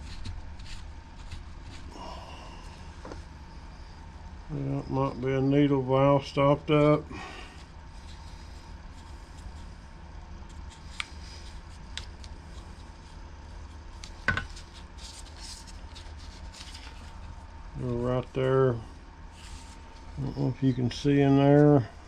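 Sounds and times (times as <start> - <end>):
rustling: 0.0 - 1.9, 10.4 - 17.5
steady low hum: 0.0 - 22.0.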